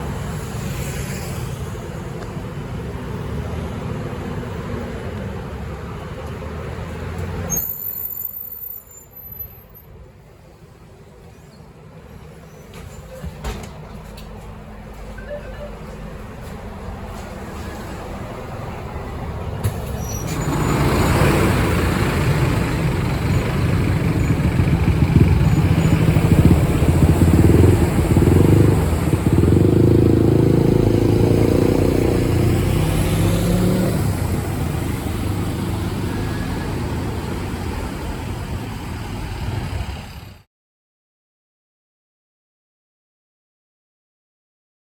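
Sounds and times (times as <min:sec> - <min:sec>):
bus engine accelerating: 0:00.0 - 0:40.5.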